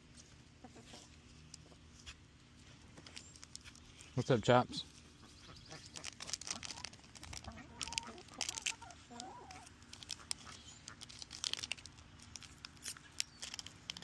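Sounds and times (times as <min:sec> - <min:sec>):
foil wrappers crinkling: 0:02.6 - 0:04.6, 0:05.7 - 0:14.0
poultry calling: 0:05.0 - 0:11.1.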